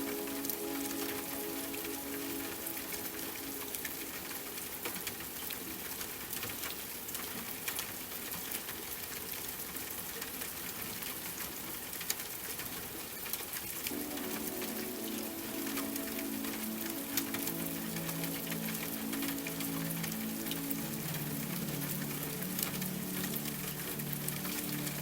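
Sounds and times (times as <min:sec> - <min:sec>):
soft held music tones: 0:00.0 - 0:06.5, 0:13.8 - 0:25.0
steady rain falling: 0:00.0 - 0:25.0
raindrop hits ticking: 0:13.9 - 0:25.0.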